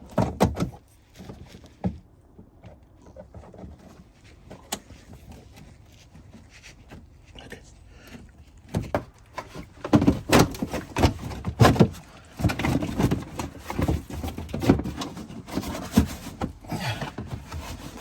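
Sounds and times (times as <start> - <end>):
plastic liner knocking and scraping: 0.0 - 7.0, 8.2 - 18.0.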